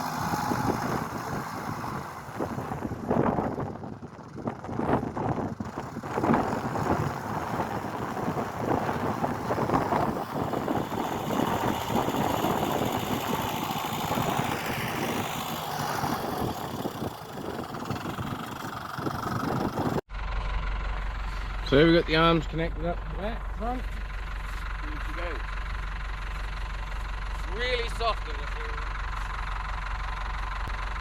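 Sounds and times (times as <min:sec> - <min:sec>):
wind buffeting microphone: 0:00.0 - 0:20.0
vehicle engine running: 0:00.0 - 0:31.0.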